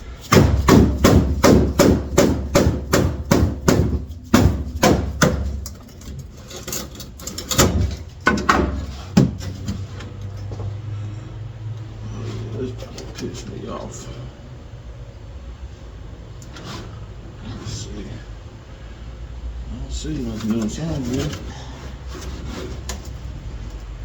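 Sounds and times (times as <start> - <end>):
hammer striking sheet steel: 0.2 - 5.9.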